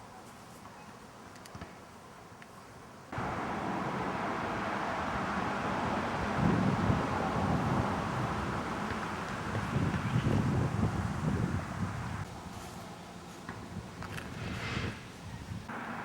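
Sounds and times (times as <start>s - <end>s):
low rumbling wind gusts: 3.1s - 12.5s
wind buffeting microphone: 3.2s - 12.4s, 13.6s - 15.7s.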